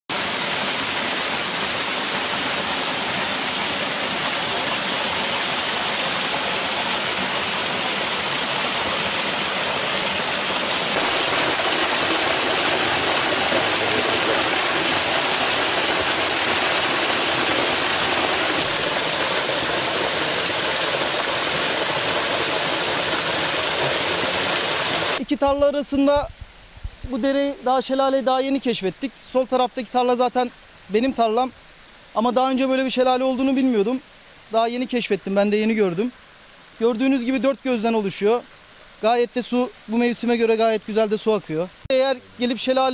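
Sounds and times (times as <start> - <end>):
waterfall rushing: 0.1 - 25.2.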